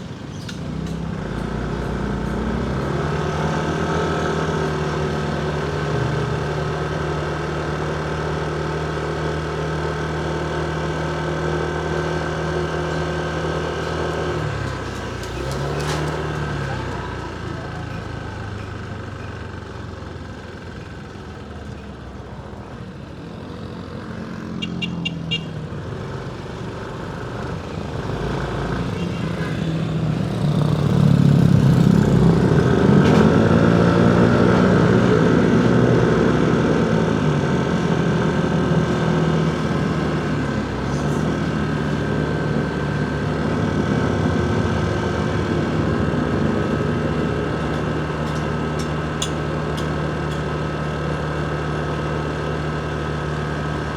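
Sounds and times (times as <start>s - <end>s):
road and traffic noise: 0.0s - 53.9s
motorcycle engine running: 16.6s - 53.9s.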